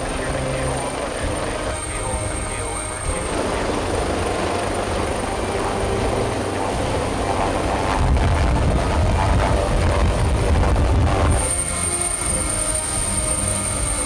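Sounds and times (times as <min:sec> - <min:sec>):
helicopter rotor rumble: 0:00.0 - 0:14.0.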